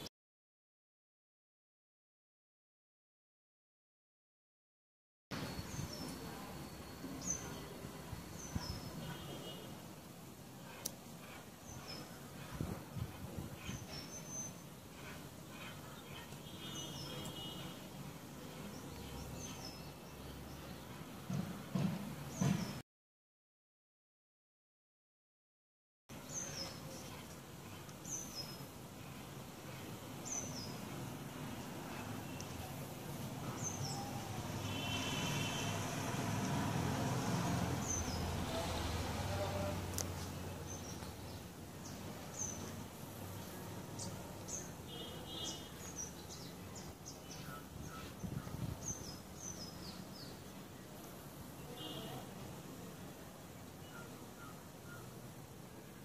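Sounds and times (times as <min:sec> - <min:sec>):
outdoor background noise: 0:05.3 - 0:22.8, 0:26.1 - 0:56.0
small birds chirping: 0:05.4 - 0:21.4, 0:26.1 - 0:35.6, 0:39.5 - 0:55.3.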